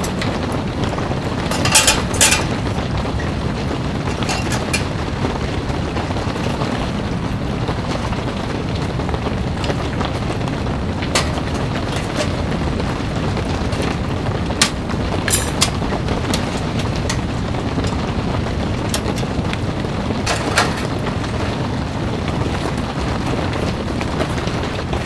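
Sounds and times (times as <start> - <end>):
rain drumming on tent fabric: 0.0 - 25.0
metal stove door clicking shut: 1.5 - 2.6, 20.3 - 20.9.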